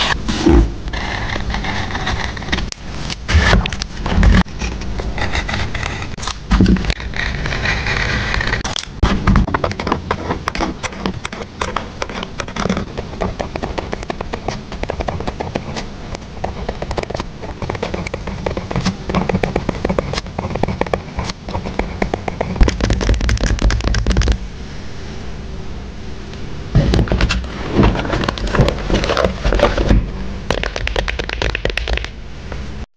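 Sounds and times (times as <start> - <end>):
low rumbling rub: 0.0 - 25.9.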